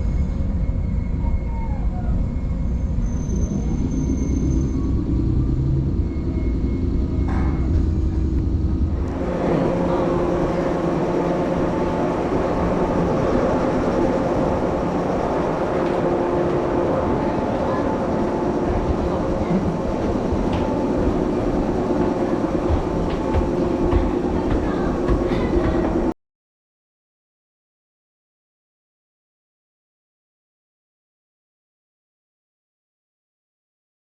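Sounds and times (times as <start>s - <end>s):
deep rumble: 0.0s - 26.2s
electric train running: 0.0s - 26.2s
bright hum with held tones: 2.1s - 26.1s.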